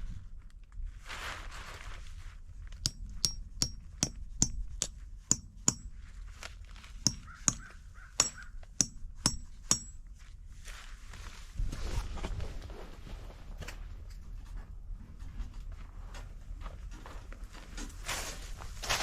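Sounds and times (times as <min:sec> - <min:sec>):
sharp metallic clinks: 0:02.9 - 0:06.0, 0:07.1 - 0:10.0.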